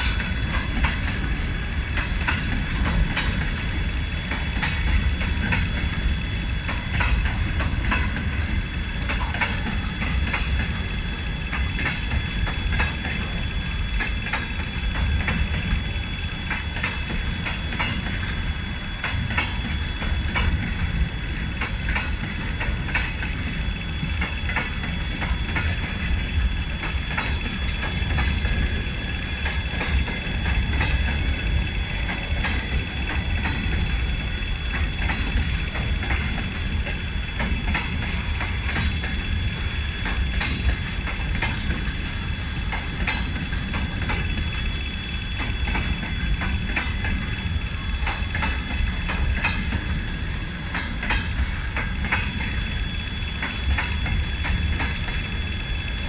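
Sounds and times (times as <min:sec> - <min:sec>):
freight train wheels rumbling: 0:00.0 - 0:56.0
wheels clicking over rail joints: 0:06.6 - 0:10.8, 0:42.6 - 0:44.5.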